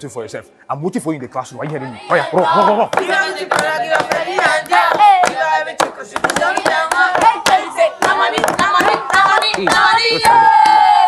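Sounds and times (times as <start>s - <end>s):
group singing and chanting: 1.6s - 11.0s
hand claps: 2.9s - 10.8s.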